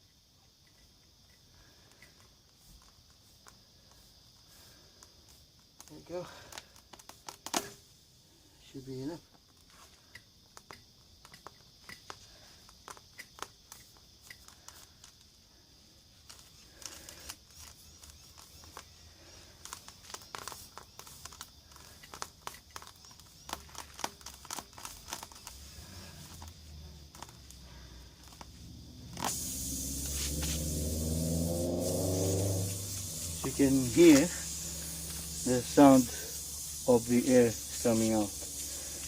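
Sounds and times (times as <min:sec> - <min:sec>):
small clicks and rustles: 0:00.0 - 0:08.0, 0:09.2 - 0:28.6
air hissing from tyre: 0:00.7 - 0:39.0.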